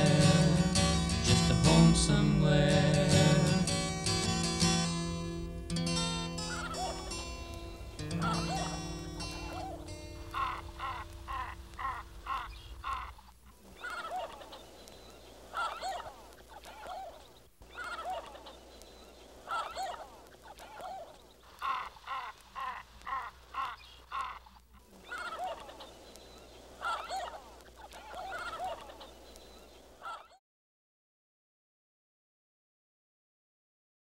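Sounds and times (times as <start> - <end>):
birds clucking calls: 5.7 - 30.4.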